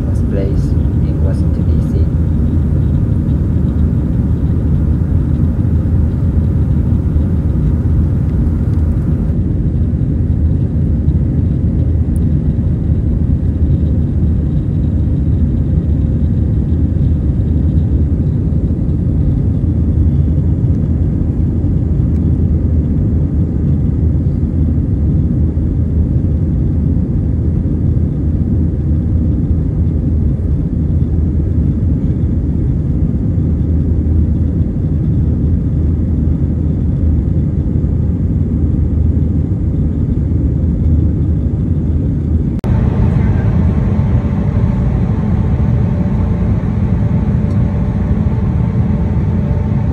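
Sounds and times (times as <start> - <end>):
airliner cabin rumble: 0.0 - 49.9.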